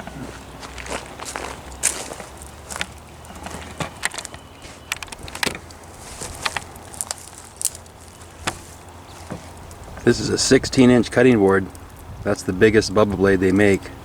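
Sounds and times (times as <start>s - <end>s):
gear clicking and knocking: 2.7s - 8.6s.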